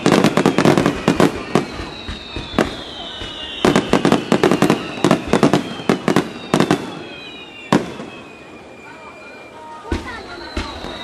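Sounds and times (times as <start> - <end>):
faint high falling whistle: 0.0 - 11.0.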